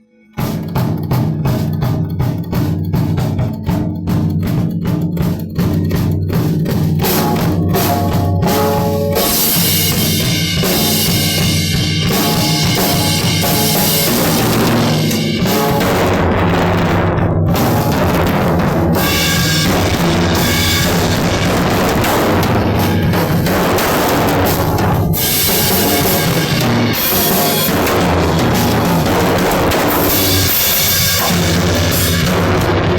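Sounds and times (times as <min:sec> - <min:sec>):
bass drum strikes: 0:00.4 - 0:32.9
fast drumming: 0:00.4 - 0:32.9
cymbals ringing: 0:06.7 - 0:16.4, 0:18.9 - 0:32.9.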